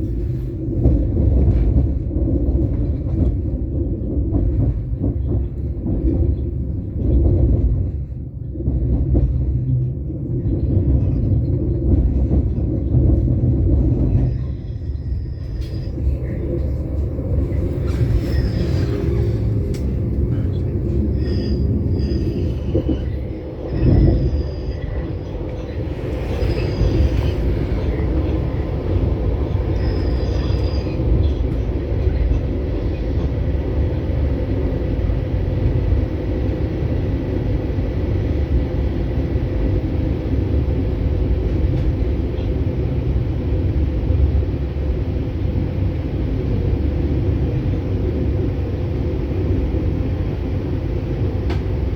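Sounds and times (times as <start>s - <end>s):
train rumbling: 0.0s - 51.9s
high squeals: 17.8s - 19.6s, 20.3s - 28.6s, 29.7s - 31.1s.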